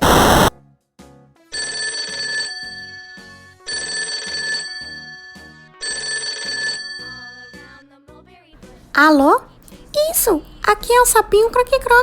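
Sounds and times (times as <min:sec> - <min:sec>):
telephone ringing: 0:01.5 - 0:07.7.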